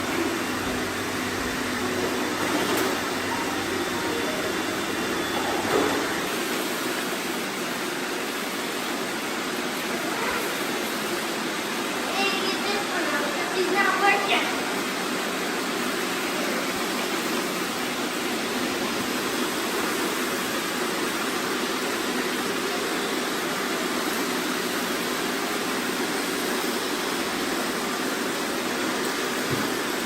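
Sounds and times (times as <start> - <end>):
robot vacuums whirring: 0.0 - 7.0.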